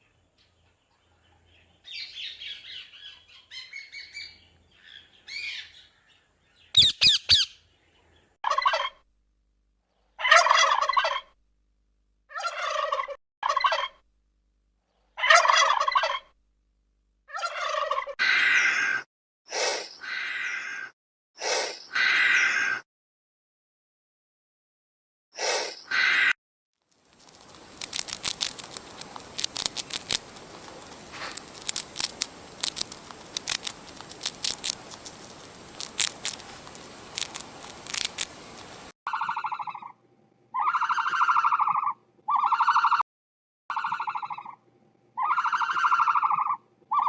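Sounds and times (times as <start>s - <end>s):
fowl chattering: 6.8s - 7.6s, 8.4s - 9.0s, 10.2s - 11.4s, 12.3s - 14.0s, 15.2s - 16.3s, 17.3s - 19.0s, 27.5s - 40.0s, 40.6s - 43.0s, 43.7s - 44.6s, 45.2s - 47.0s
fowl loud calls: 8.4s - 9.0s, 10.2s - 11.3s, 12.3s - 14.0s, 15.2s - 16.3s, 17.3s - 19.0s, 25.9s - 26.3s, 40.6s - 43.0s, 45.2s - 47.0s.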